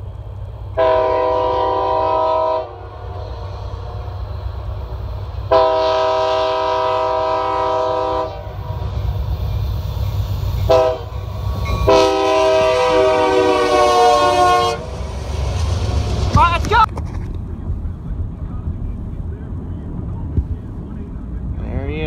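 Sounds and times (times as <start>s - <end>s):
train rumbling past: 0.0s - 22.0s
locomotive air horn blasts: 0.8s - 3.0s, 5.5s - 8.6s, 10.7s - 15.0s.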